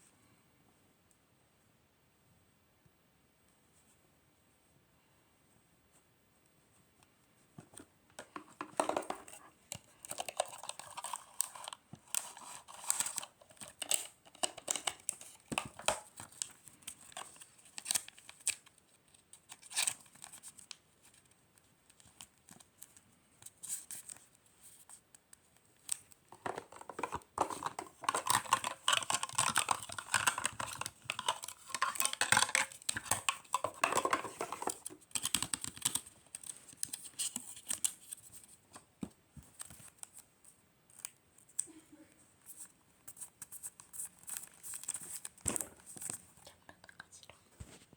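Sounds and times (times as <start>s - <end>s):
packaging crinkling and rustling: 8.2s - 24.4s, 25.8s - 38.8s, 42.5s - 46.3s.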